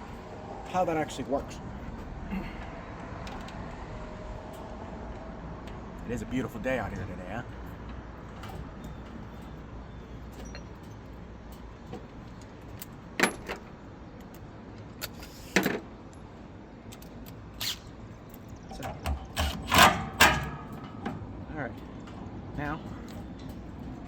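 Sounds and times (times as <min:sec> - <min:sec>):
steady low rumble: 0:00.0 - 0:14.7
sharp metallic clinks: 0:10.3 - 0:11.1.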